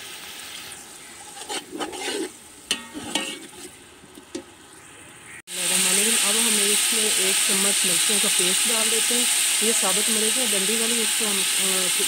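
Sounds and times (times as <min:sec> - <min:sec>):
masala sizzling in a metal pot: 0:00.0 - 0:12.0
metal skimmer scraping a pot: 0:01.1 - 0:03.8.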